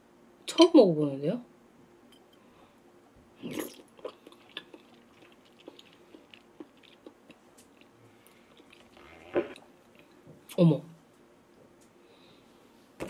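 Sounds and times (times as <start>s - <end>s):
person eating with mouth sounds: 3.4s - 10.2s
chewing and smacking clicks: 3.7s - 8.9s.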